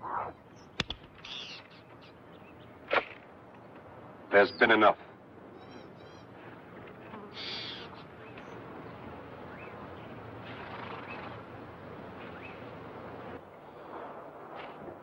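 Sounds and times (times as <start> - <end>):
bird chirping: 0.0 - 2.9, 5.4 - 6.6, 7.3 - 11.5, 12.1 - 12.8
outdoor hush: 0.0 - 15.0.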